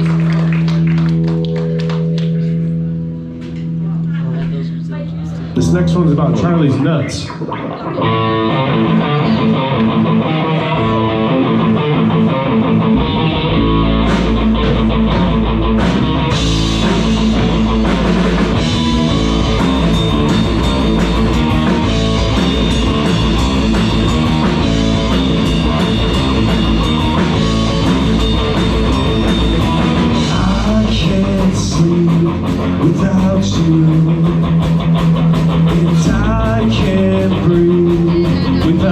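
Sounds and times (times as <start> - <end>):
bass guitar: 0.0 - 38.9
electric guitar: 0.0 - 38.9
drums with cymbals: 14.0 - 38.9.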